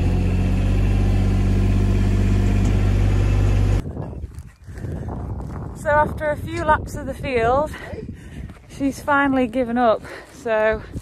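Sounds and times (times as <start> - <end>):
farm vehicle engine running: 0.0 - 3.8
faint wind: 0.0 - 11.0.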